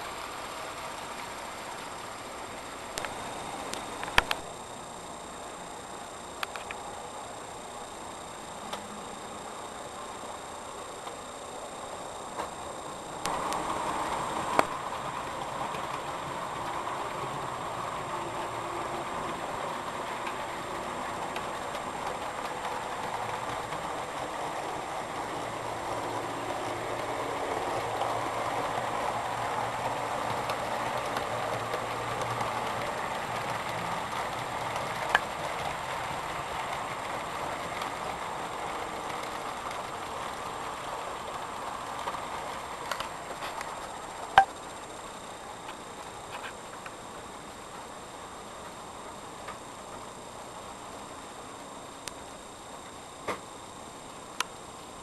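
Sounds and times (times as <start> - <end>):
model train whirring on track: 0.0 - 55.0.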